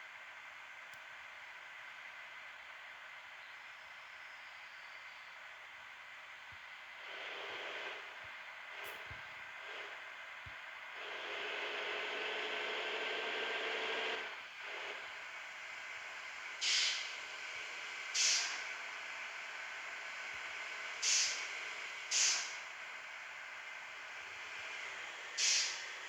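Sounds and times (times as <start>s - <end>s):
short sharp air bursts: 16.6s - 17.1s, 18.2s - 18.7s, 21.0s - 21.5s, 22.1s - 22.6s, 25.4s - 25.9s
air brake hissing: 16.6s - 17.3s, 18.1s - 18.8s, 21.0s - 22.7s, 25.4s - 26.0s.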